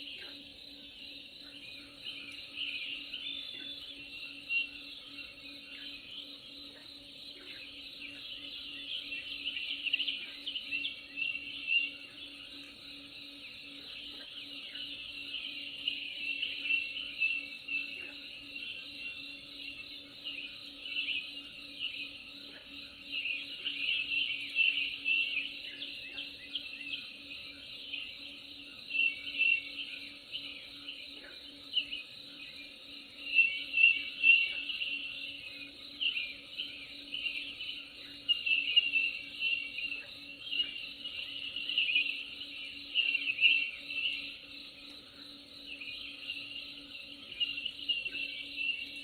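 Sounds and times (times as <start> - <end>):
birds and insects chirping: 0.0 - 49.0.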